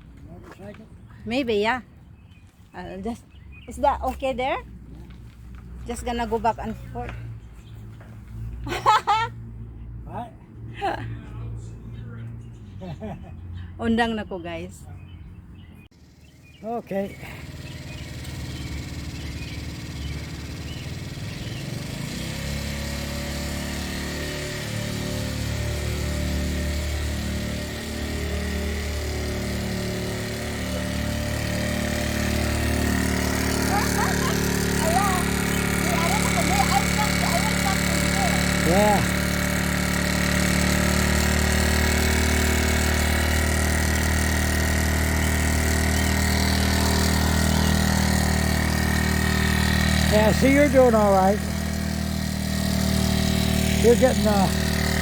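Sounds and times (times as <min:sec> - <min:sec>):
small motorcycle engine running: 0:15.6 - 0:55.0.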